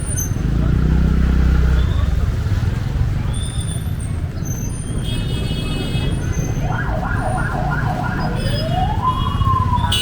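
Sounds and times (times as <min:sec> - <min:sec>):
street traffic rumble: 0:00.0 - 0:10.0
electronic siren yelping: 0:06.5 - 0:10.0.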